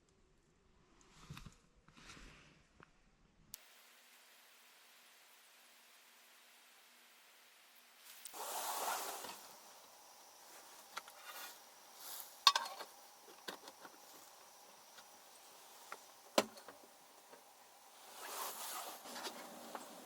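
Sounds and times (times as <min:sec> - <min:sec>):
rustling: 0:08.0 - 0:20.0.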